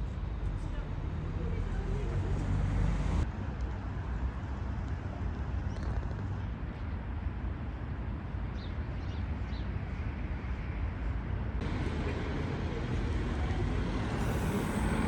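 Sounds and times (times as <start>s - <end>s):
low outdoor rumble: 10.5s - 15.0s.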